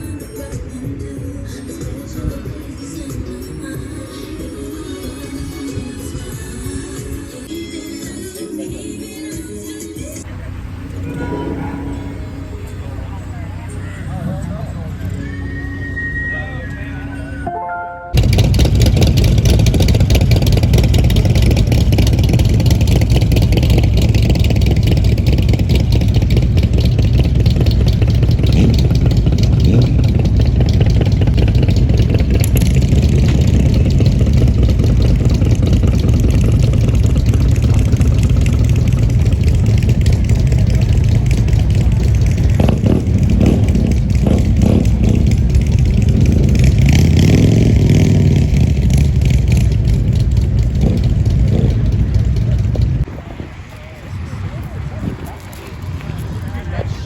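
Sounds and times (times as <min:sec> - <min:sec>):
motorcycle engine running: 0:10.2 - 0:15.4, 0:18.2 - 0:57.0.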